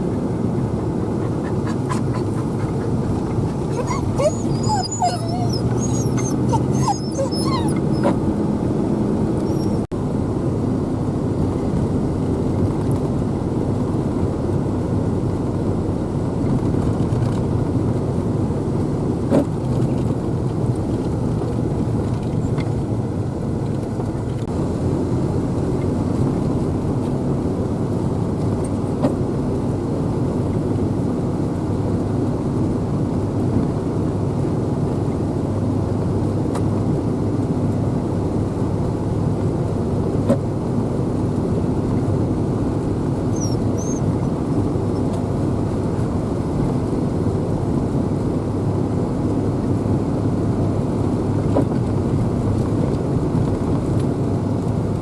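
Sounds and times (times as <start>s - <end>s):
vehicle rumble from inside cab: 0.0s - 55.0s
dog whining: 1.0s - 8.4s, 9.4s - 9.9s, 43.2s - 44.2s.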